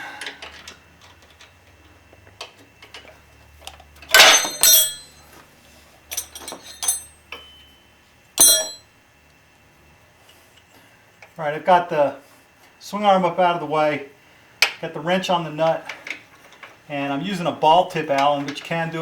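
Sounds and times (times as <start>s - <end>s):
metal tools clinking on metal: 4.1s - 5.2s, 6.0s - 7.8s, 8.4s - 8.8s.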